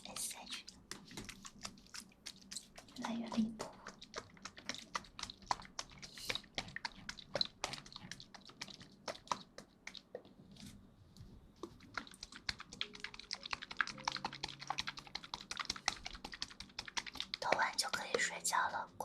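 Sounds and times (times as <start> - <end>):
small clicks and taps: 11.6 - 18.4.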